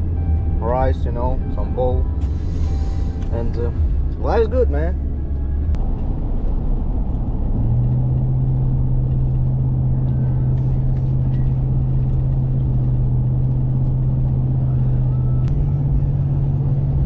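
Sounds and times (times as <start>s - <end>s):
car road rumble: 0.0s - 17.0s
low engine drone: 0.0s - 17.0s.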